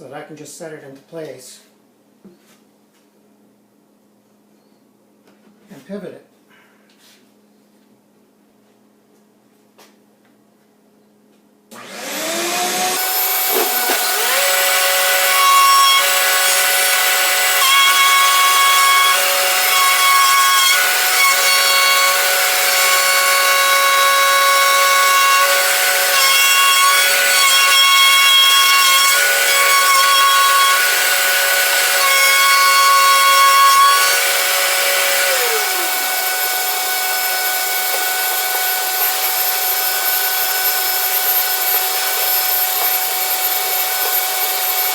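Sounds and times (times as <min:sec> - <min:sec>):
wood router whining: 0:11.7 - 0:44.9
router bit cutting plywood: 0:11.8 - 0:44.9.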